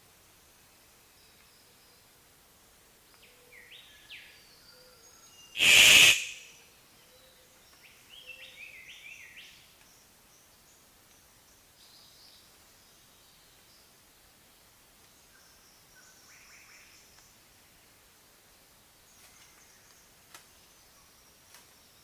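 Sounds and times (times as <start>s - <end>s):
bird chirping: 5.5s - 6.5s
harsh bird call: 5.6s - 6.5s.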